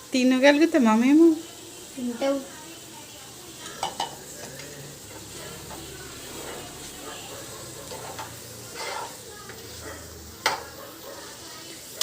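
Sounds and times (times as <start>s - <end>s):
chicken sizzling in a pan: 0.0s - 12.0s
spoon scraping and tapping: 7.9s - 9.2s.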